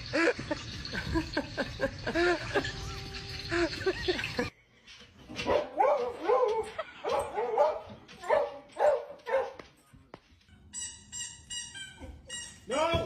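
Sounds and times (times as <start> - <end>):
dog barking: 5.4 - 9.7.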